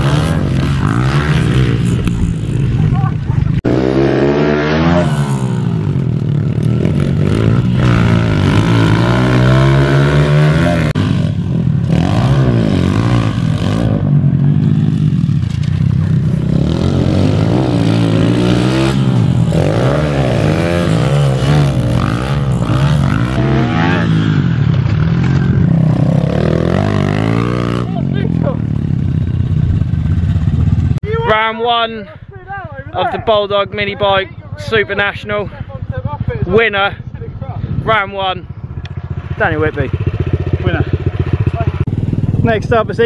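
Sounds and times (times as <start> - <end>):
minibike engines revving: 0.0 - 31.9, 32.6 - 43.0.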